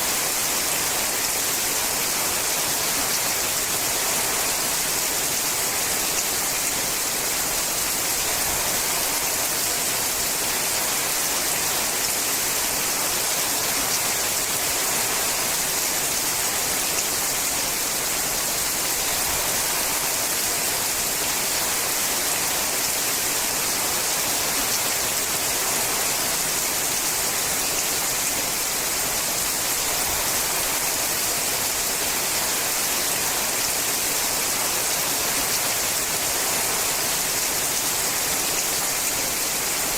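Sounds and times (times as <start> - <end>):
rain on a metal roof: 0.0 - 39.9.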